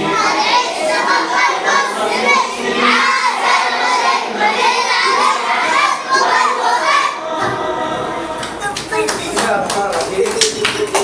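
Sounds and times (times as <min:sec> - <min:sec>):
children shouting and singing: 0:00.0 - 0:07.5.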